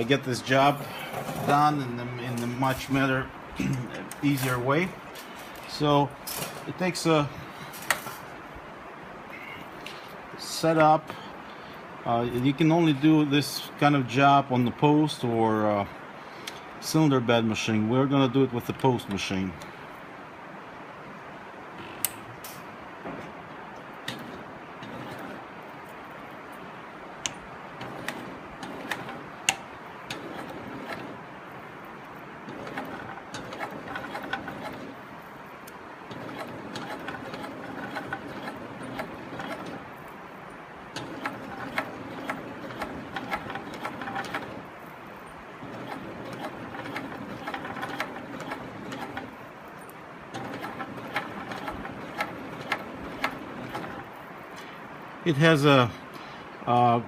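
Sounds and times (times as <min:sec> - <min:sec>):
industrial sewing machine stitching: 0:24.0 - 0:25.6, 0:27.8 - 0:31.3, 0:32.4 - 0:35.2, 0:36.0 - 0:40.0, 0:40.9 - 0:44.7, 0:45.5 - 0:49.5, 0:50.3 - 0:54.2.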